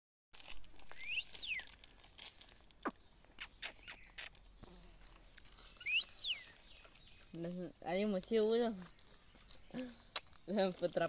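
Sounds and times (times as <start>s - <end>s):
bird giving short high calls: 0.9s - 1.7s, 5.7s - 6.7s.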